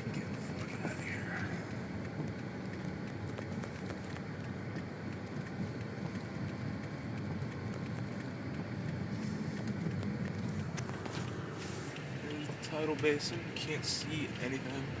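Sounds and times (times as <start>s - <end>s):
car driving on snow: 0.0s - 15.0s.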